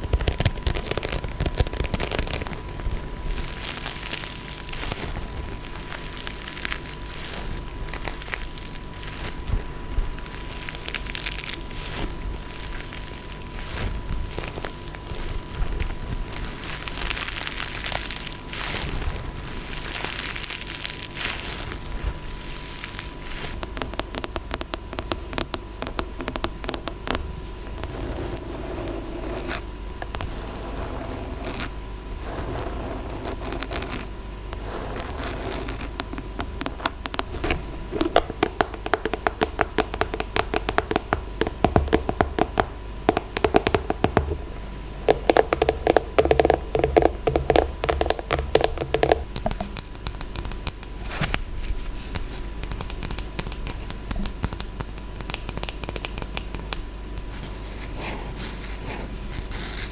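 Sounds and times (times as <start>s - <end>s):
scratching on objects: 0.0s - 59.9s
tapping on objects: 35.0s - 51.4s, 52.2s - 57.3s.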